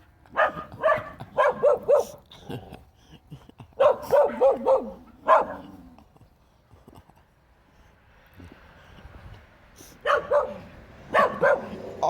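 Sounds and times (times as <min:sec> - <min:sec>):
dog yipping: 0:03.8 - 0:05.6, 0:10.1 - 0:11.8.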